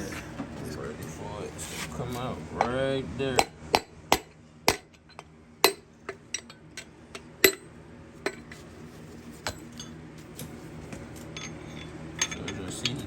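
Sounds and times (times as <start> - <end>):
hammer striking metal: 3.4 - 7.7.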